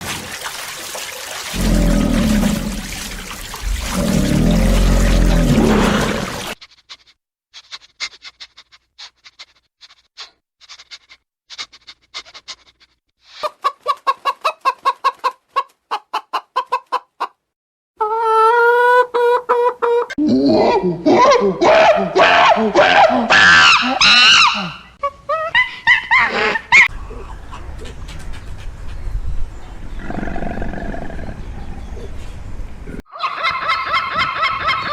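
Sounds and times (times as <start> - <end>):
chickens clucking: 13.4 - 17.4, 18.0 - 20.2, 26.8 - 29.2.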